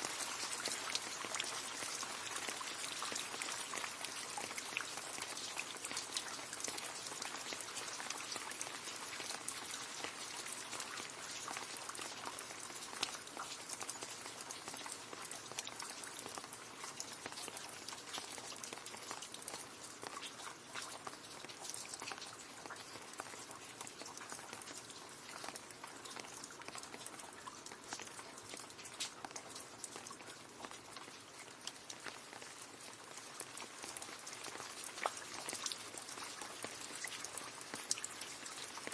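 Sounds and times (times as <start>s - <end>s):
rain splashing into a puddle: 0.0s - 38.9s.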